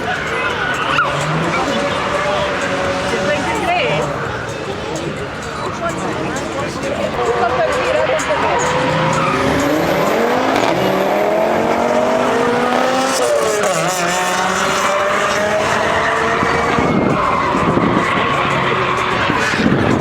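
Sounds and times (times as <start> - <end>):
tyre squeal: 0.0 - 2.8
car engine revving: 0.0 - 20.0.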